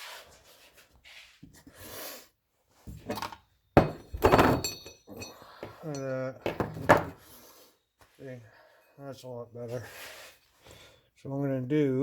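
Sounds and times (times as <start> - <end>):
loud metallic clank with ringing: 3.8 - 5.3.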